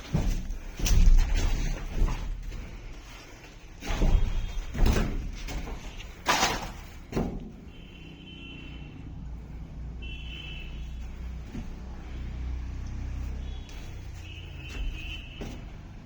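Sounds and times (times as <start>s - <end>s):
doors knocking and slamming: 3.8s - 7.7s.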